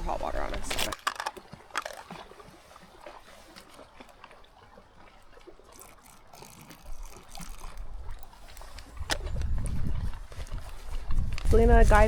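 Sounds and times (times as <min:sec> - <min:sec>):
water trickling into pouch: 0:00.0 - 0:12.0
crinkly ticks of pouch: 0:05.7 - 0:11.6.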